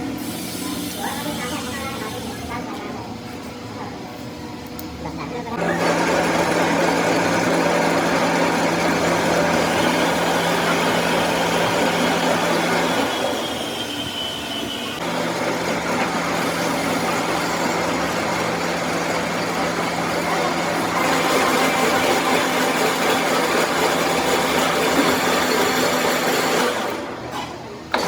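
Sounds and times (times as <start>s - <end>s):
workshop machine grinding: 5.6s - 28.0s.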